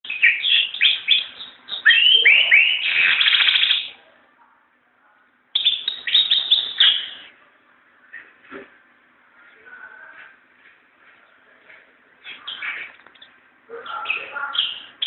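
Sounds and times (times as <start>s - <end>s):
bird twittering: 0.0s - 4.0s, 5.6s - 7.3s, 12.2s - 15.0s.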